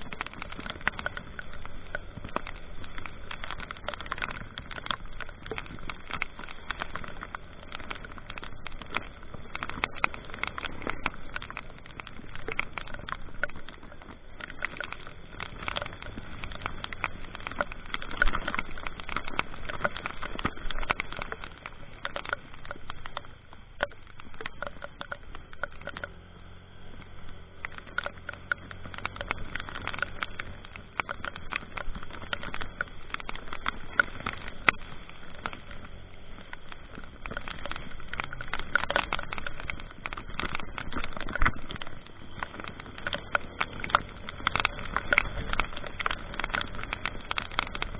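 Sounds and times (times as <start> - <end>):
rain pattering: 0.0 - 47.9
vehicle engine running: 0.0 - 47.9.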